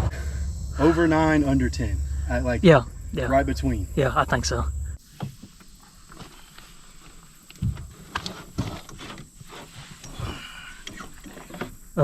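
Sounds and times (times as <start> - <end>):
knocks and thumps: 7.6 - 9.6.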